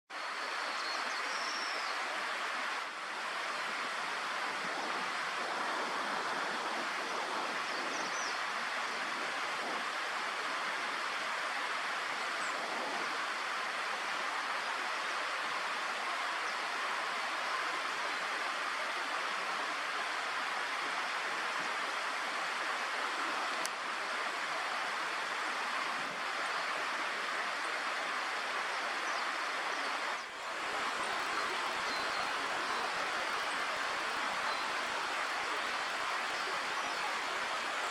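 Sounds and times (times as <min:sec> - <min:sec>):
faint high bird calls: 0:30.2 - 0:37.9
steady outdoor rushing noise: 0:30.2 - 0:37.9.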